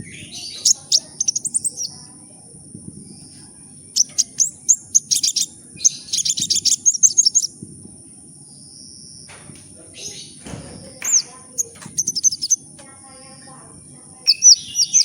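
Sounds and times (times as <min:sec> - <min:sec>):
bird chirping: 0:00.0 - 0:02.0, 0:03.1 - 0:07.5, 0:10.0 - 0:12.7, 0:14.2 - 0:15.0.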